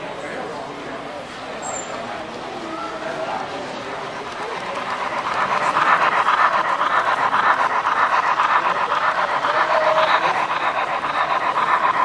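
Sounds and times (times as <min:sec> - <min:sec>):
model train clattering: 0:03.4 - 0:12.0.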